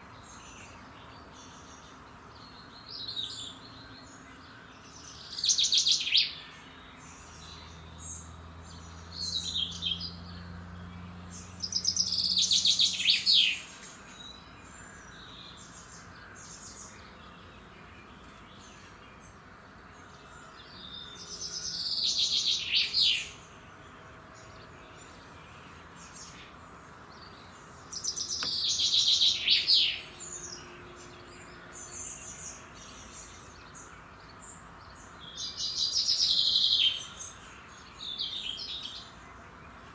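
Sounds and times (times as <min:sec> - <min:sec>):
songbird singing: 0:00.0 - 0:39.9
faint bird chirps: 0:27.2 - 0:34.6.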